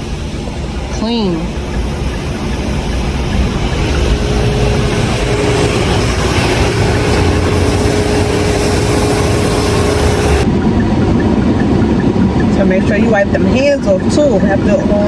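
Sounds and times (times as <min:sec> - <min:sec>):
vacuum suction rushing: 0:00.0 - 0:10.5
steady hum: 0:00.0 - 0:15.0.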